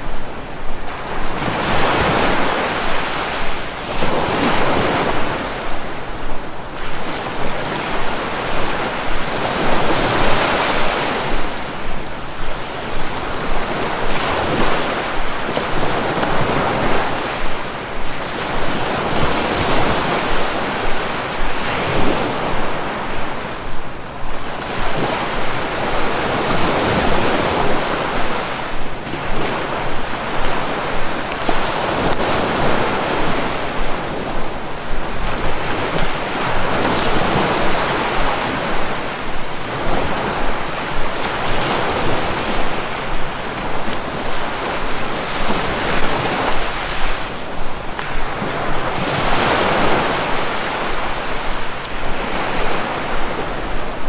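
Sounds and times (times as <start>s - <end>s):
sea waves breaking: 0.0s - 54.0s.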